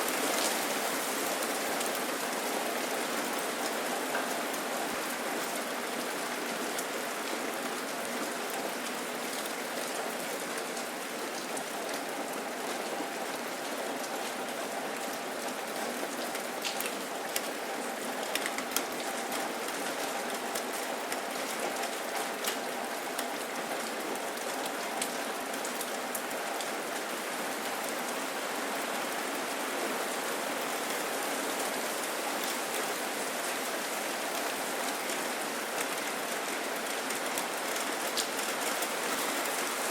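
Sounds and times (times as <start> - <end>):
steady rain falling: 0.0 - 39.9
raindrops ticking: 16.2 - 24.0.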